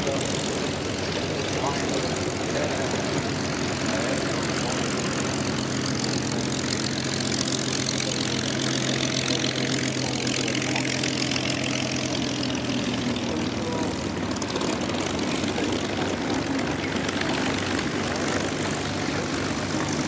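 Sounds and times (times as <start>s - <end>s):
propeller plane engines droning: 0.0s - 20.0s.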